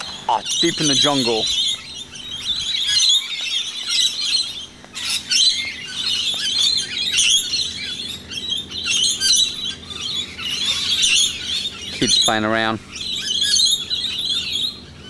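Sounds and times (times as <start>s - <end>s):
many birds chirping and squawking: 0.0s - 15.0s.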